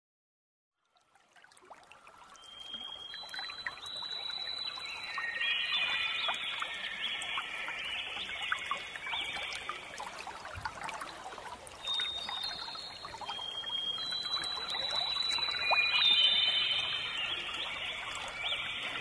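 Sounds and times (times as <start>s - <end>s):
water trickling: 0.8s - 19.0s
short whistle-like notes: 11.9s - 19.0s.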